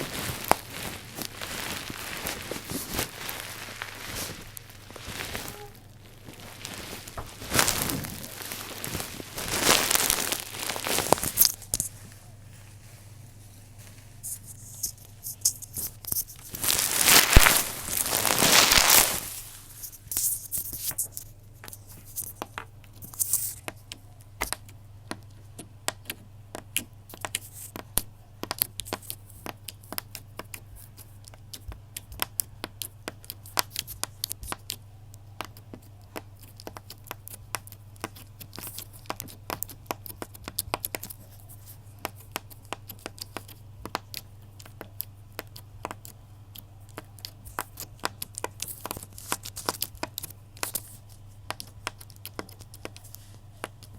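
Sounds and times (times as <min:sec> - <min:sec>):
sharp crackles and clicks: 0:00.0 - 0:11.9, 0:14.6 - 0:24.8
steady low hum: 0:00.0 - 0:53.9.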